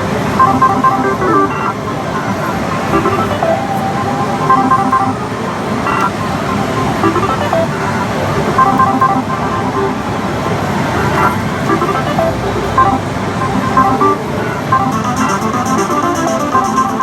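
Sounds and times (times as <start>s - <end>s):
quick high rhythmic ticking: 4.5s - 5.2s, 5.9s - 10.1s, 11.1s - 17.0s
slot machine jingles: 11.0s - 17.0s.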